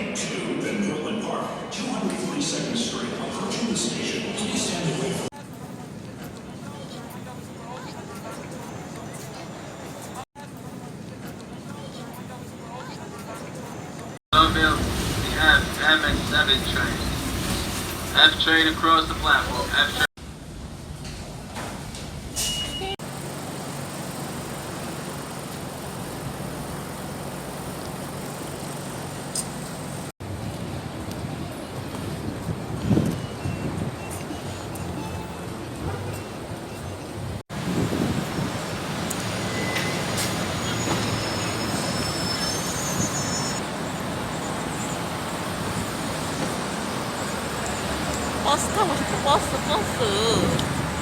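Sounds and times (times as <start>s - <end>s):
moving vehicle rumble: 14.0s - 51.0s
high wheel squeal: 33.0s - 37.4s, 39.1s - 51.0s.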